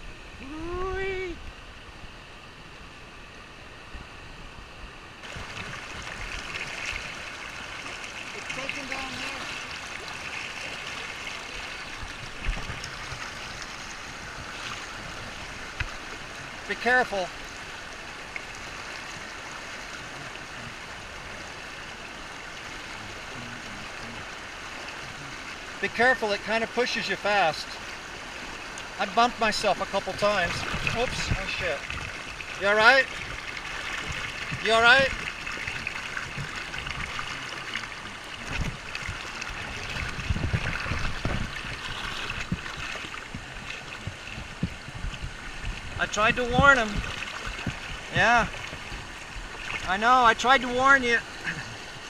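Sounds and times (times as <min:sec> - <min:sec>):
creek water rushing: 0:00.0 - 0:52.0
low thumps and splashes: 0:05.2 - 0:26.6, 0:27.8 - 0:52.0.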